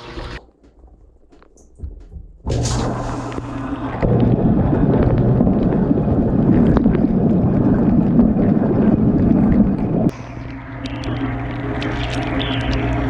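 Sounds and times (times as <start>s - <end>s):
pump motor hum: 0.0s - 0.4s, 2.5s - 13.0s
water spray rushing: 2.5s - 5.0s
small ticks: 10.5s - 13.0s.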